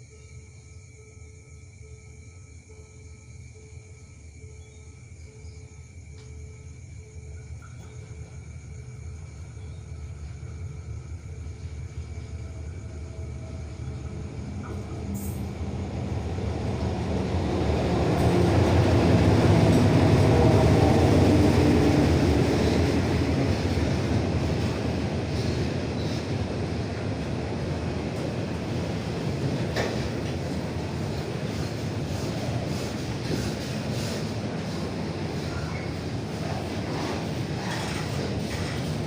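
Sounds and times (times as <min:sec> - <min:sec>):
diesel train passing: 0:00.0 - 0:39.0
train wheel noise: 0:02.1 - 0:39.0.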